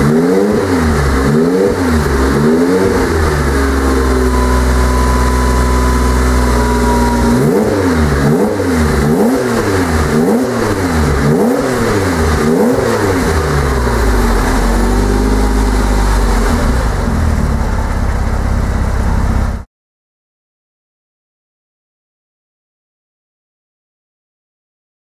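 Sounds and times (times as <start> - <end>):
car engine idling: 0.0 - 19.6
car engine revving: 0.0 - 19.6.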